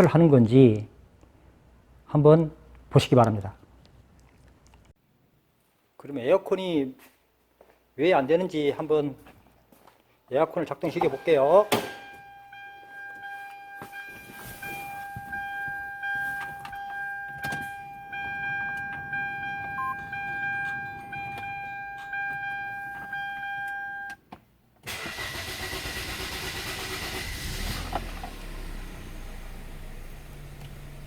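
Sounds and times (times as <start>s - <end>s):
electronic warning tone: 11.0s - 24.2s
car engine starting and running: 24.8s - 31.0s.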